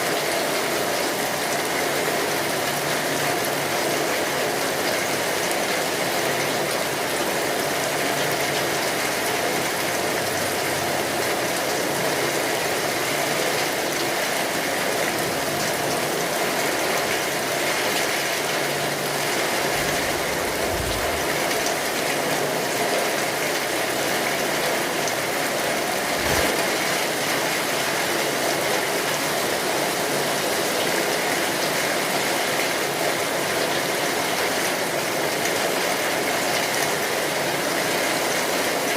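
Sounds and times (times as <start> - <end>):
steady rainfall: 0.0 - 38.9
low thuds: 19.6 - 22.0.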